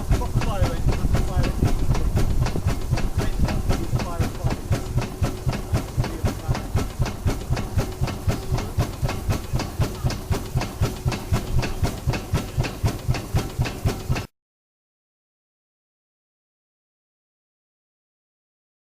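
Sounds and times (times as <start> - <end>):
fire engine engine running: 0.0 - 14.3.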